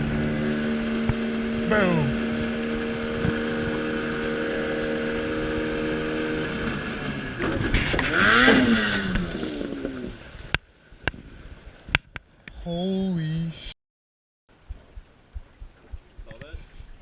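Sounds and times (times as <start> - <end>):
engine running: 0.0 - 10.2.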